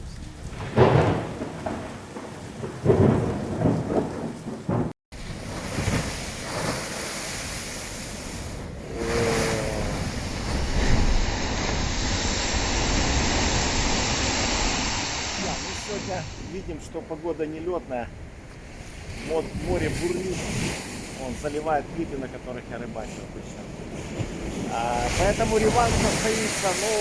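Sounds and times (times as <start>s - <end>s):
waves crashing onto shore: 4.7s - 27.0s
heavy wind noise: 8.2s - 22.1s.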